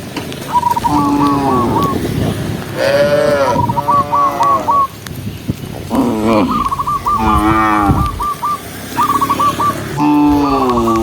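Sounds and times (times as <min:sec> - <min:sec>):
cattle mooing: 0:02.8 - 0:04.7, 0:05.9 - 0:08.2, 0:10.0 - 0:11.0
high repeated chirping call: 0:03.5 - 0:05.0, 0:06.4 - 0:11.0.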